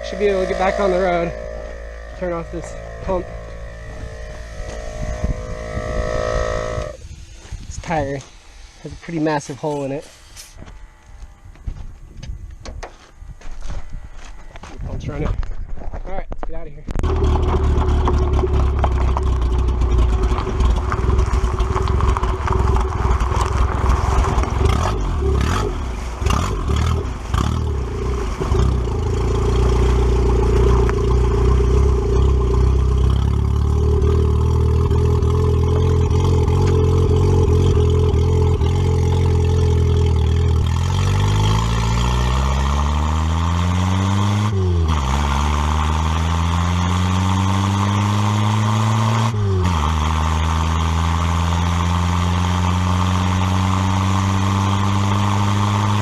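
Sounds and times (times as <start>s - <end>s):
car engine idling then revving: 17.0s - 56.0s.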